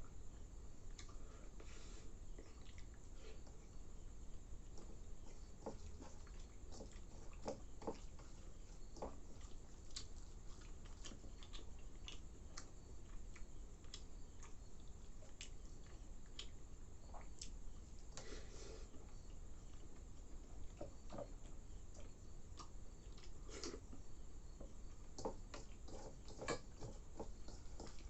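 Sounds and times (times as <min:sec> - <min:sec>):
person chewing wetly: 0:02.3 - 0:03.7, 0:04.3 - 0:18.2, 0:18.8 - 0:28.0.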